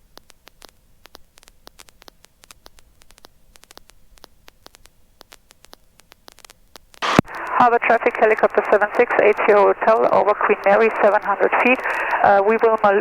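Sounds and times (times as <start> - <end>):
static clicks and crackle: 0.0 - 13.0.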